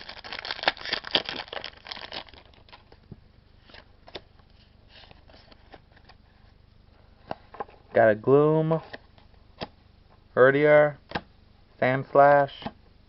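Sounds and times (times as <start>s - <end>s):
foil wrapper crinkling and tearing: 0.0s - 2.9s.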